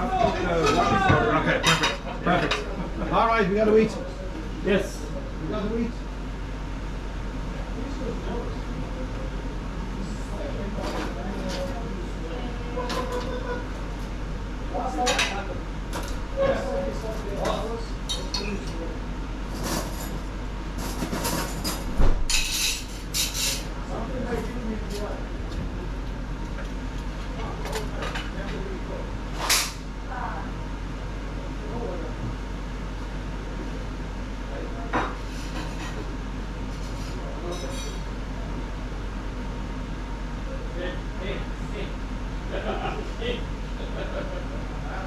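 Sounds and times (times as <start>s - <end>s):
low background hum: 0.0s - 45.0s
dishes and cutlery clinking: 1.5s - 2.7s.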